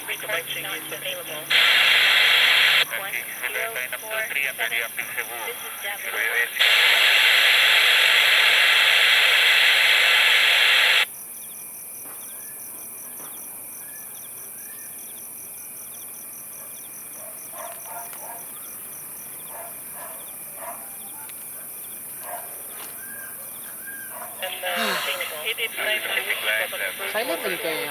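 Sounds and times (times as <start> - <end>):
radio static hiss: 0.0 - 11.1, 24.4 - 27.9
insects chirping: 0.0 - 27.9.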